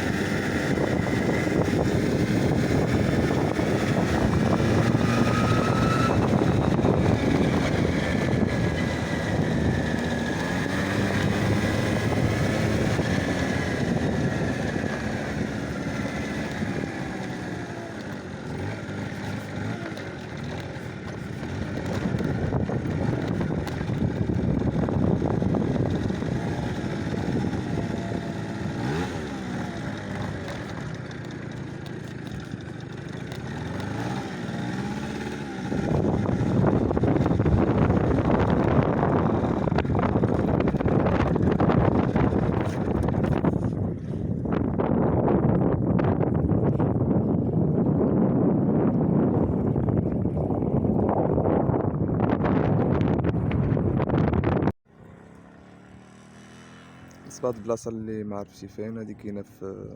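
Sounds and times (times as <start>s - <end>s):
wind on microphone: 0.0s - 17.3s, 21.0s - 30.4s, 33.8s - 54.8s
vehicle engine running: 0.0s - 59.9s.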